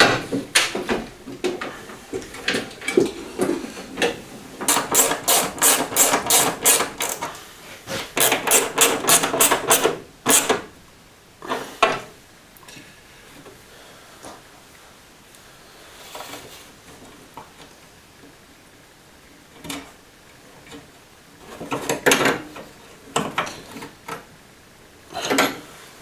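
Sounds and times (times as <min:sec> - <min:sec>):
tools clinking on metal: 0:08.2 - 0:10.6.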